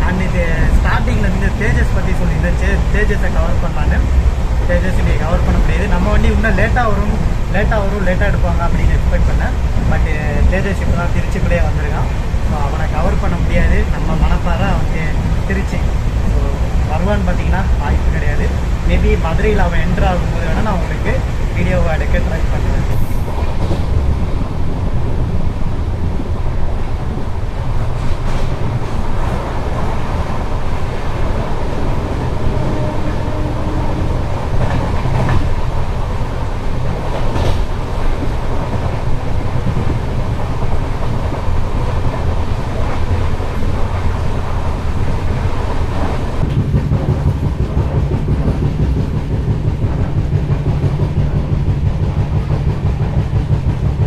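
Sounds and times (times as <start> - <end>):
train wheels rumbling on rails: 0.0 - 54.0
wheels clacking over rail joints: 17.5 - 54.0.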